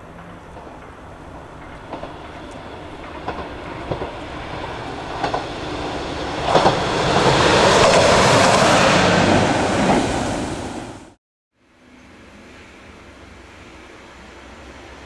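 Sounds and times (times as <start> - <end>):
wheels clacking over rail joints: 0.0 - 8.7
train passing close by: 0.0 - 15.0.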